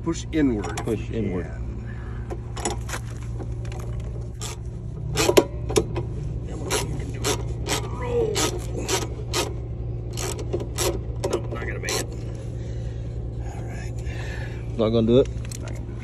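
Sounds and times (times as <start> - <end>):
steady low hum: 0.0 - 16.0
wrench ratcheting on bolt: 6.7 - 11.0.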